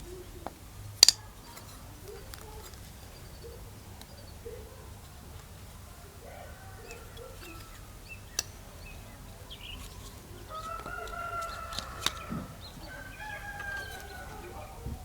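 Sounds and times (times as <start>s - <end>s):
sharp clicks: 0.4s - 4.4s, 6.8s - 14.4s
rooster crowing: 5.8s - 8.3s, 9.3s - 15.0s.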